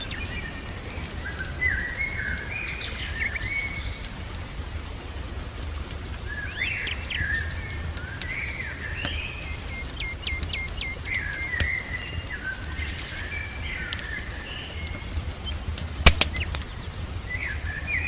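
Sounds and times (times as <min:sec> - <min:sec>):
songbirds whistling: 0:00.0 - 0:04.2, 0:06.0 - 0:18.0
fireplace crackling: 0:00.0 - 0:18.0.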